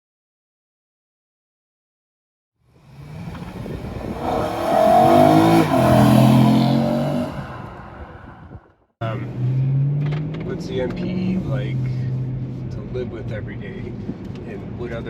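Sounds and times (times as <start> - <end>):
car accelerating by: 2.8 - 8.6.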